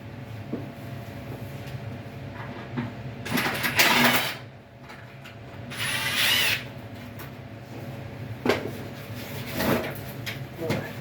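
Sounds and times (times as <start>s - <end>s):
cordless screw gun whirring: 5.7s - 6.7s.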